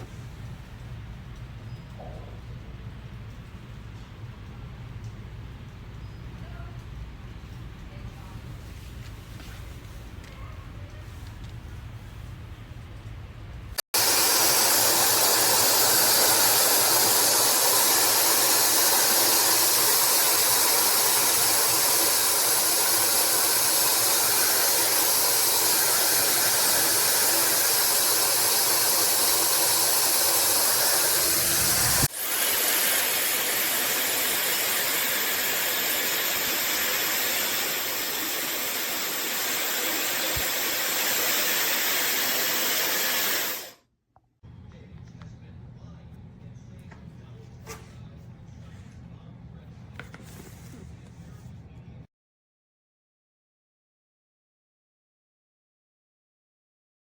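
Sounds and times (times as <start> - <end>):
hair dryer blowing: 14.0 - 43.8
thin high whine: 14.0 - 43.8.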